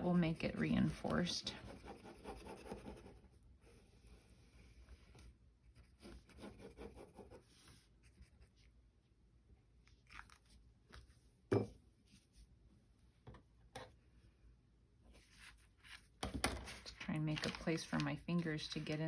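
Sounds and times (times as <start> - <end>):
paper rustling and crinkling: 15.2 - 19.0.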